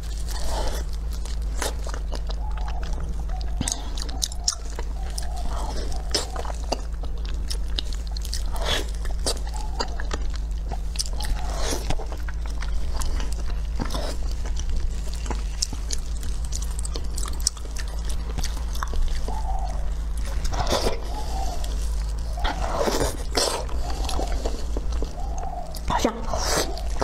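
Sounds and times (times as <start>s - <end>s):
steady low hum: 0.0s - 27.0s
wet chewing and smacking: 0.0s - 27.0s
sharp mouth clicks: 1.7s - 5.3s.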